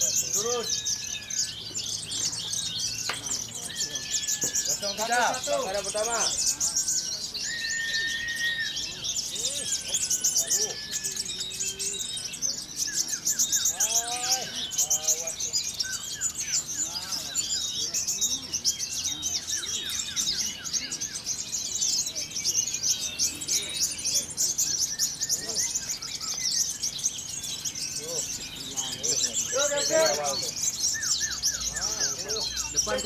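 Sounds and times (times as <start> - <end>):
bird whistled glides: 0.0 - 33.0
songbirds chirping and trilling: 0.0 - 33.0.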